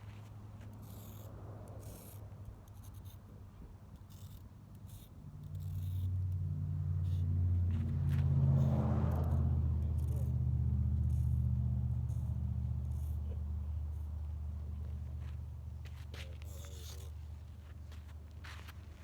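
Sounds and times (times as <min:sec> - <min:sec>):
faint clicks and scrapes: 0:00.0 - 0:19.0
vehicle engine humming: 0:05.2 - 0:19.0.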